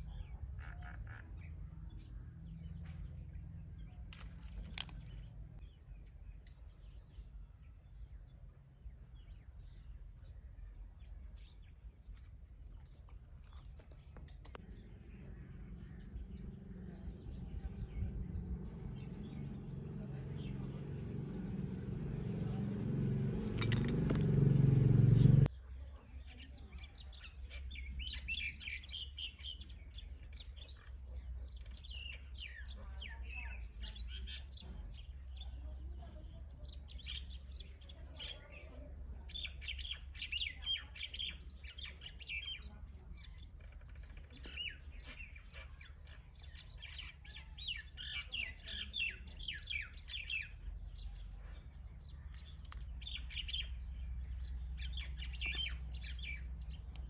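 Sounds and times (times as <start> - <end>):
small birds chirping: 0.0 - 57.0
low rumble: 14.4 - 25.5.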